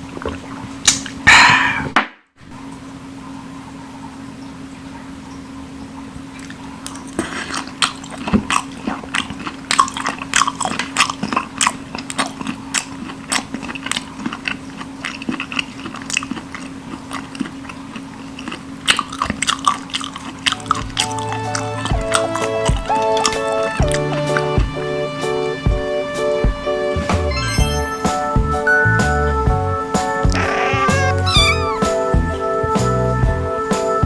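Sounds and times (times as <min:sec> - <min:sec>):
wet crunching of chewing raw fish: 0:06.4 - 0:24.3.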